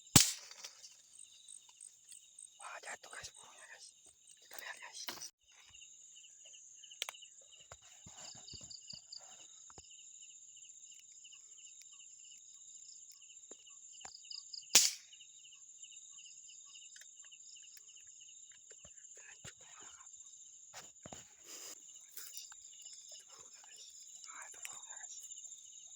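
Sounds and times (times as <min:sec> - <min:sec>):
crickets chirping: 0:00.0 - 0:25.9
loud sharp snap: 0:00.2 - 0:00.7, 0:14.8 - 0:15.1.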